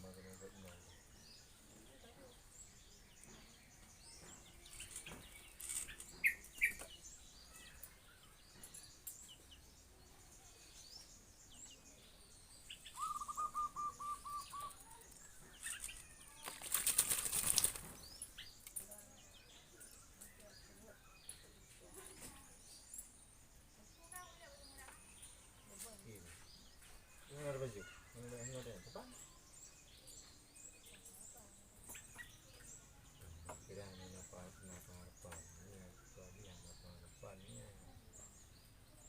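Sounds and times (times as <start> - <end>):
small bird chirps: 0.0 - 39.0
rapid bird trill: 12.7 - 15.0
bird wings flapping: 15.6 - 18.2.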